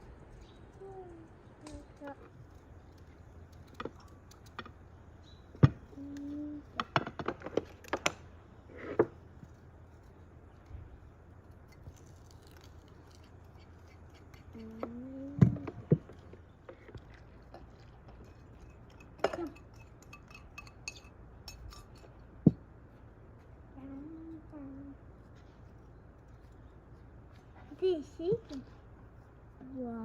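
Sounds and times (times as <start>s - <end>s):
dishes and utensils clinking: 18.1s - 22.2s.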